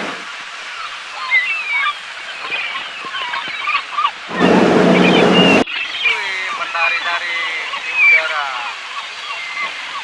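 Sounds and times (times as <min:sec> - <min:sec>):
gulls calling: 0:00.7 - 0:10.0
loud rushing noise with low hum: 0:04.3 - 0:05.6.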